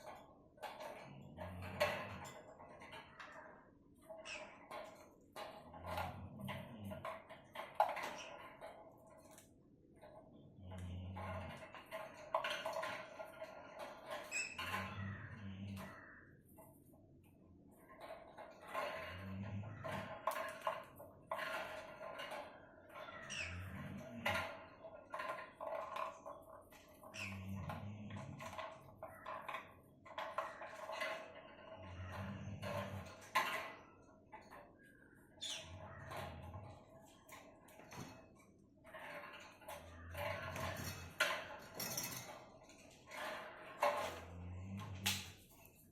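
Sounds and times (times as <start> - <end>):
bird playing with toy ball: 25.1 - 45.9.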